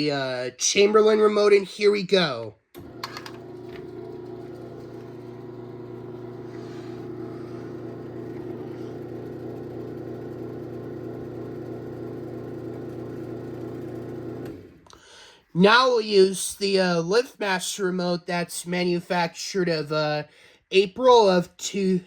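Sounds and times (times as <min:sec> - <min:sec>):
garage door motor humming: 0:02.8 - 0:14.8.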